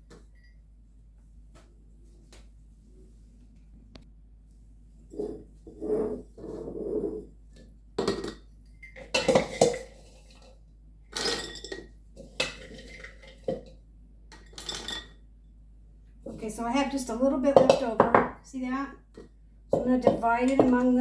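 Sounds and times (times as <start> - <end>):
glass jars clinking: 8.0 - 10.5, 11.1 - 13.7, 14.3 - 15.2, 19.7 - 21.0
kitchen utensils clattering: 8.1 - 10.5, 11.1 - 13.6, 14.4 - 15.2.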